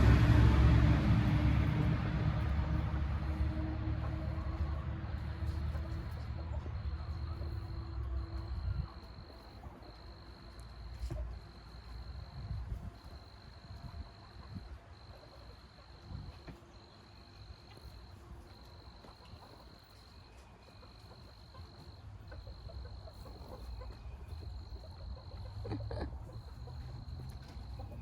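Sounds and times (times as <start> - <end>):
faint low rumble: 0.0 - 15.1.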